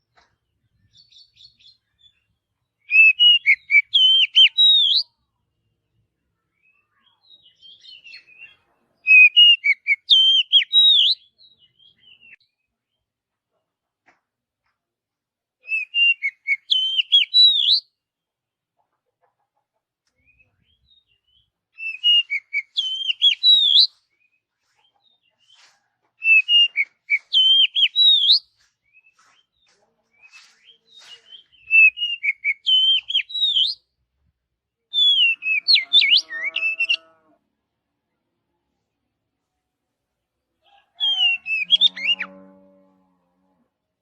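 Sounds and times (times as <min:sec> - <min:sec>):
bird singing whistled phrases: 0:02.8 - 0:05.1, 0:06.6 - 0:12.4, 0:15.7 - 0:17.8, 0:20.6 - 0:23.9, 0:26.2 - 0:29.2, 0:30.2 - 0:33.8, 0:34.9 - 0:37.0, 0:41.0 - 0:42.3
lower-pitched bird call: 0:35.0 - 0:37.3, 0:40.7 - 0:42.6.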